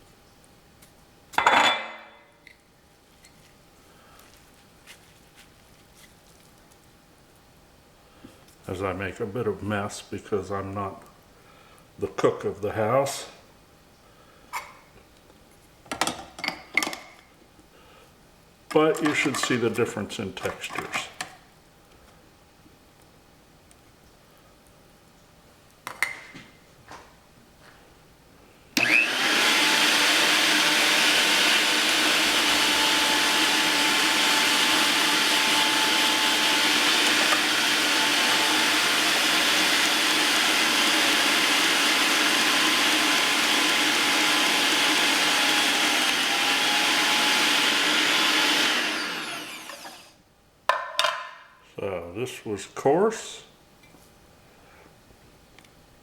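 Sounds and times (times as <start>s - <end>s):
meat grinder motor running: 28.8s - 50.1s.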